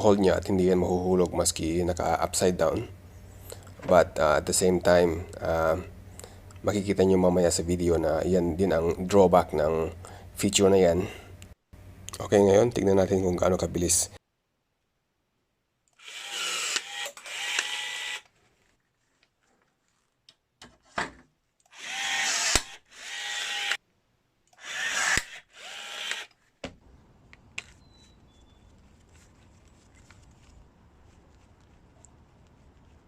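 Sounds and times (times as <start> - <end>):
rivet gun motor whirring: 16.0 - 18.3, 21.7 - 23.8, 24.6 - 26.4.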